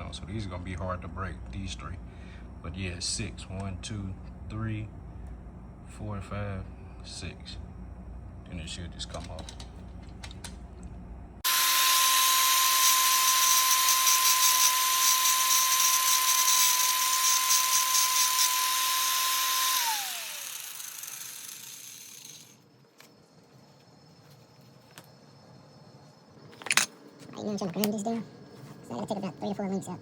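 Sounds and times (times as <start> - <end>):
power grinder grinding metal: 11.4 - 22.5.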